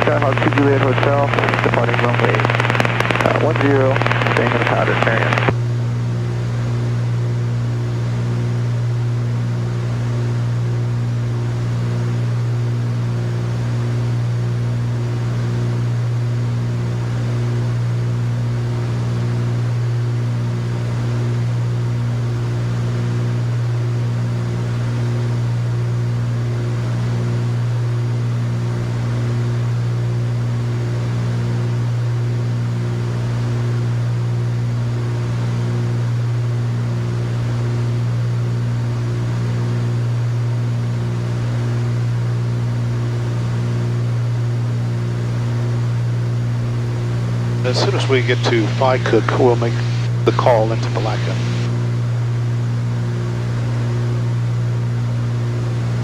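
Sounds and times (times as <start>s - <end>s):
twin propeller engines droning: 0.0s - 5.5s, 47.7s - 51.7s.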